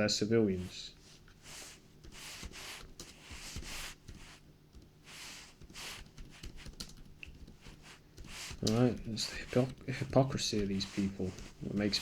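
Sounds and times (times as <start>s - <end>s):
faint electrical hum: 0.0s - 12.0s
soft brushing near microphone: 0.5s - 4.4s, 7.7s - 12.0s.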